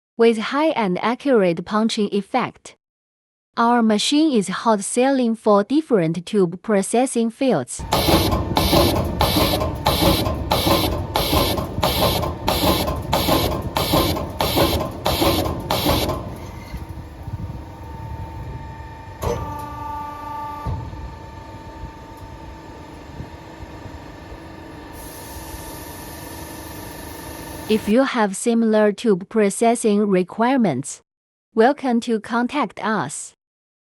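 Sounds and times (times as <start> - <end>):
metal clank: 7.8 - 16.9
punching machine clacking: 7.8 - 17.1
machine humming: 7.8 - 27.9.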